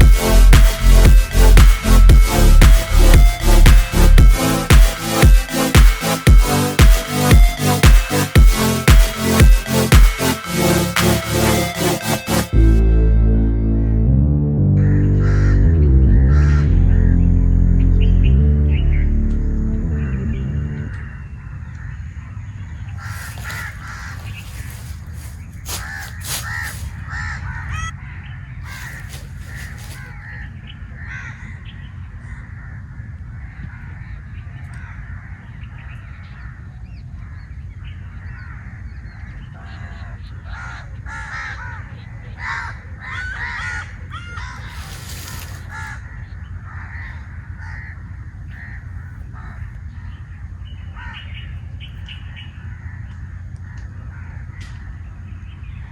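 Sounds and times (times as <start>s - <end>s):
low rumble: 12.5s - 21.1s
birds calling: 22.9s - 27.9s, 28.6s - 30.4s.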